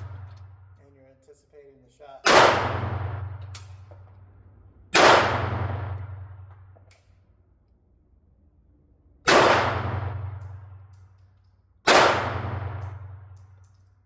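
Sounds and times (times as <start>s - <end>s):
pistol shots: 2.2s - 3.9s, 4.9s - 6.4s, 9.3s - 10.7s, 11.9s - 13.4s.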